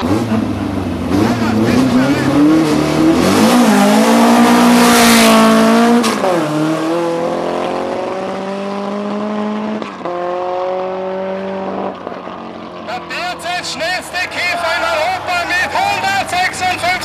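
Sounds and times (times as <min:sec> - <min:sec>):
drag car engine accelerating: 0:00.0 - 0:14.4.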